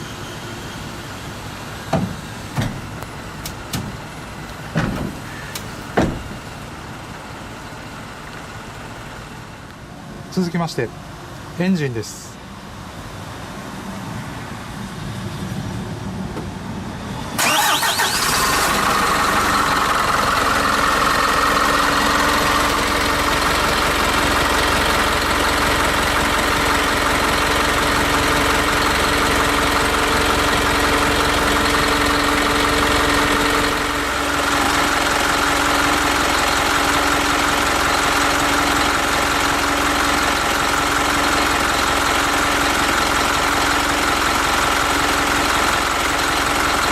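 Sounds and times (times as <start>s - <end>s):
diesel engine idling: 0.0s - 15.3s, 16.0s - 46.9s
starter cranking diesel engine: 17.4s - 46.9s.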